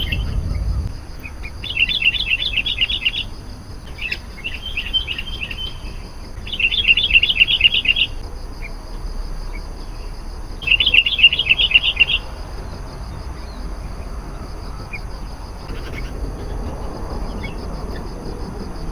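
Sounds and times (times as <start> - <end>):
faint insect-like hum: 0.0 - 18.9
bulbul bubbling song: 9.5 - 14.2.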